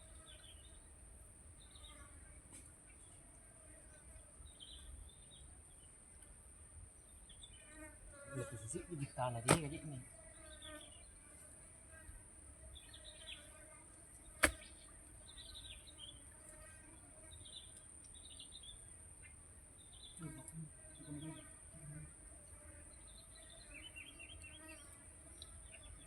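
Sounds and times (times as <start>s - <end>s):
small birds chirping: 7.0s - 11.3s, 12.7s - 13.6s, 14.2s - 21.9s, 22.6s - 26.0s
sharp click: 14.4s - 14.6s.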